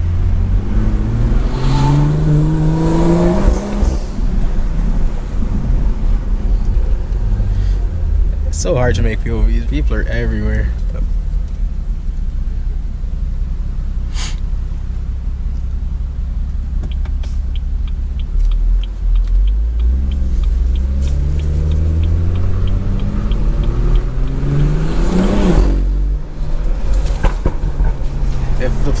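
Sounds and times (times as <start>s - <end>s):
car engine revving: 0.0s - 12.7s, 15.1s - 29.0s
brief hiss: 14.1s - 14.5s
light ticking: 16.4s - 25.1s.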